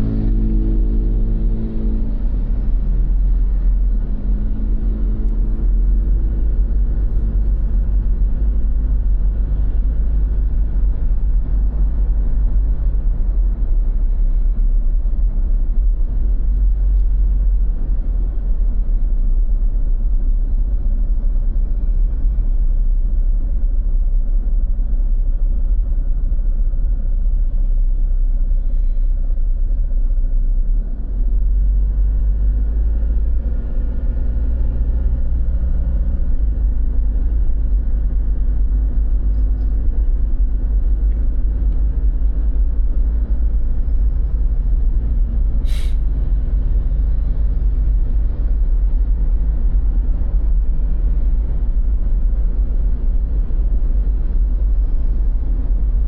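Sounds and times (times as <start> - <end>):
vehicle engine passing: 0.0 - 3.6
low rumble of road traffic: 0.0 - 56.0.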